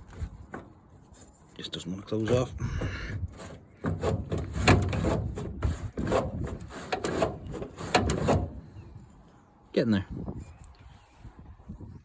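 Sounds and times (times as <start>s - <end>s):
metal flap scraping and rubbing: 2.2s - 8.6s.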